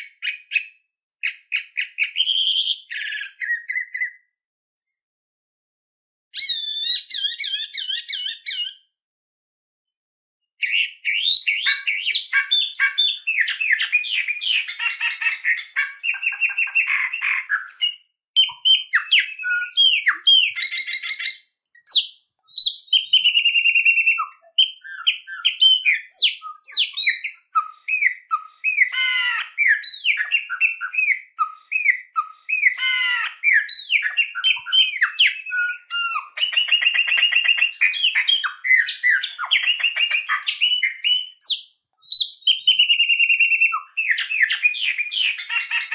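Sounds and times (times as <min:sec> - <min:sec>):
songbird singing trills: 0:10.7 - 0:45.9.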